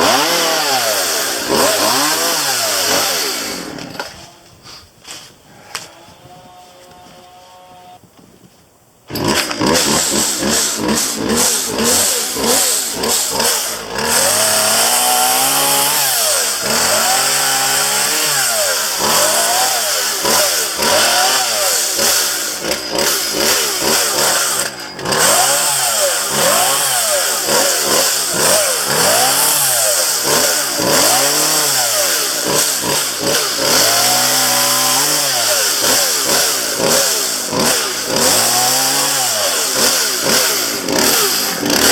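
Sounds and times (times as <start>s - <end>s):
chainsaw revving: 0.0s - 4.1s, 9.1s - 41.9s.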